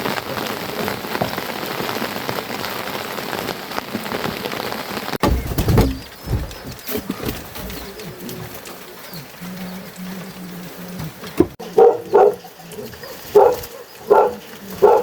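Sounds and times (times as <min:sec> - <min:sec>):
rain falling: 0:00.0 - 0:15.0
heavy low thump: 0:05.2 - 0:08.0.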